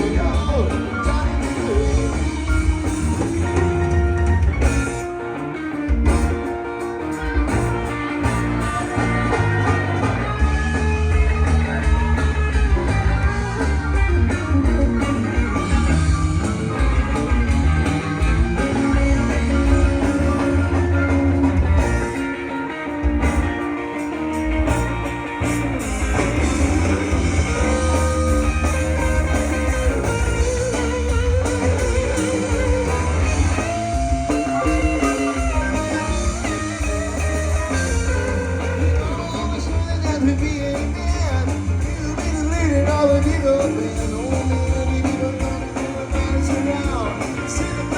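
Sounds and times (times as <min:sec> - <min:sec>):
guitar lead with held notes: 0:00.0 - 0:47.9
heavy bass line: 0:00.0 - 0:47.9
live band playing: 0:00.0 - 0:47.9.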